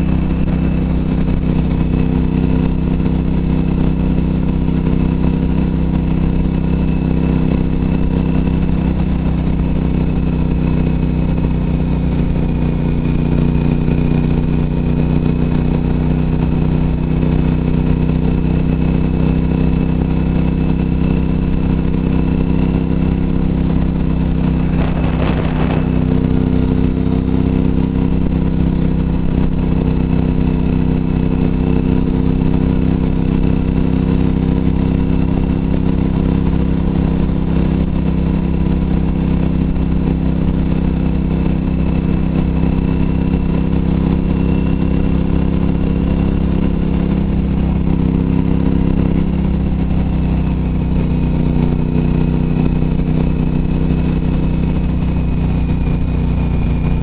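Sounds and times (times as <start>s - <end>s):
motorcycle engine cruising: 0.0s - 57.0s
rushing noise: 23.6s - 27.4s.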